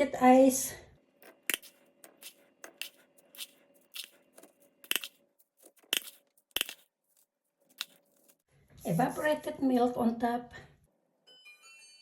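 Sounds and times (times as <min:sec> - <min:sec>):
grated ice crunching and scraping: 0:01.5 - 0:08.5.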